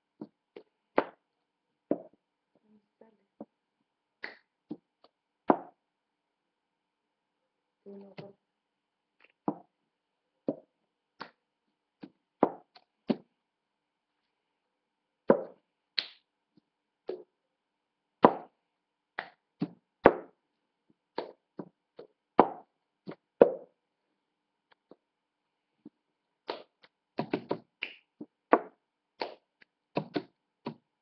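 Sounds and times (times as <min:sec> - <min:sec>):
hand claps: 0:04.2 - 0:04.5, 0:11.2 - 0:11.4, 0:15.3 - 0:16.3, 0:19.2 - 0:19.4, 0:21.1 - 0:21.4, 0:26.4 - 0:30.8.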